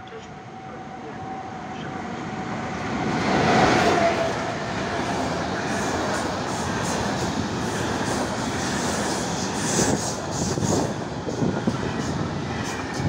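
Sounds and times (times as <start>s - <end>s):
train wheels rumbling on rails: 2.6s - 13.0s.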